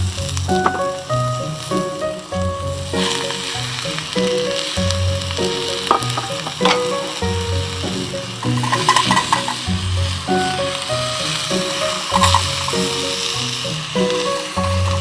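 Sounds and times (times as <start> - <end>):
background music with held notes: 0.0 - 15.0
food sizzling in a pan: 0.0 - 15.0.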